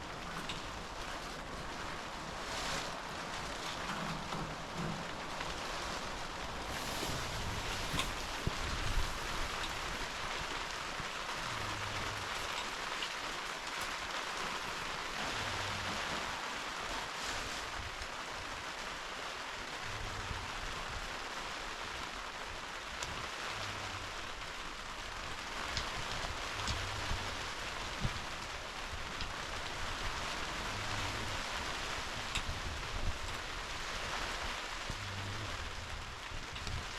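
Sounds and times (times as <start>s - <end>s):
heavy rain: 0.0s - 36.9s.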